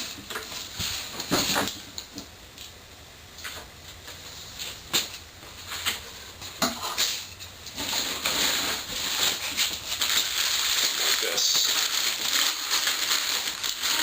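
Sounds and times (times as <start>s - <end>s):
wrapping rustling: 7.2s - 14.0s.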